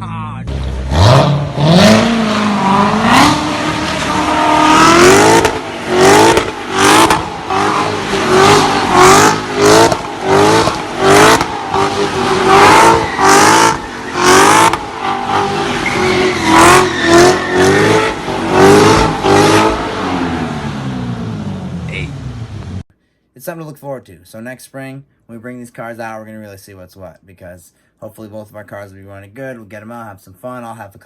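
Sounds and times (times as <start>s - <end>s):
car engine revving: 0.5s - 22.8s.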